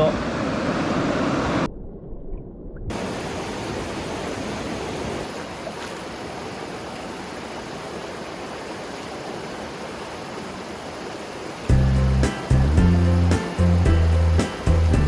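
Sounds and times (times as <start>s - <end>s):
stream rushing water: 2.9s - 15.0s.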